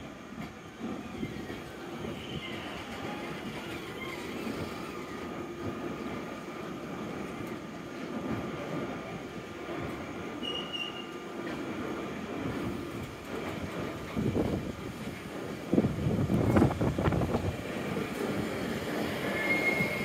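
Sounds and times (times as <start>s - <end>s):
train wheels rumbling on rails: 0.0s - 20.0s
high wheel squeal: 19.0s - 20.0s.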